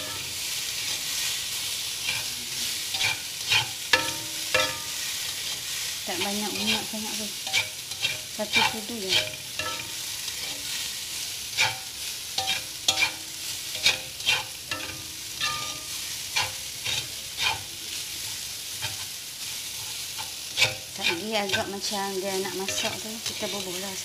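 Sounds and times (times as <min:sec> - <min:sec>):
noodles sizzling in oil: 0:00.0 - 0:24.0.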